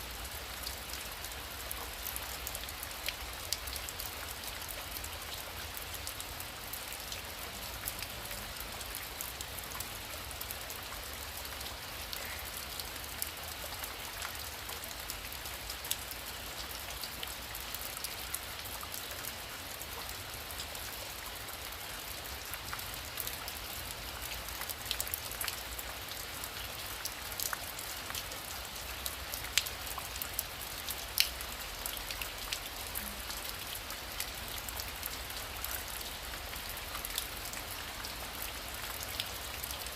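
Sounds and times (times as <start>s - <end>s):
heavy rain falling: 0.0s - 39.9s
raindrops ticking: 22.6s - 39.9s.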